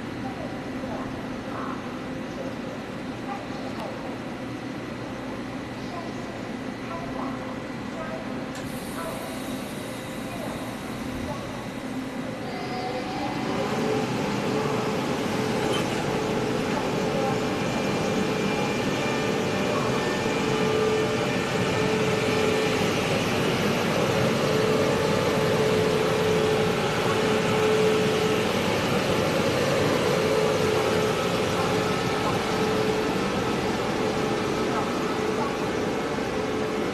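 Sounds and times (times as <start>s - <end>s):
train rumbling: 8.0s - 36.9s.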